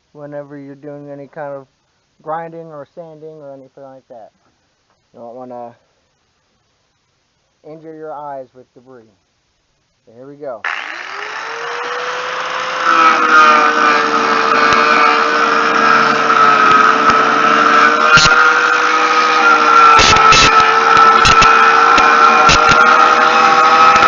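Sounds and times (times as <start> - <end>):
angle grinder whining: 10.6 - 24.0.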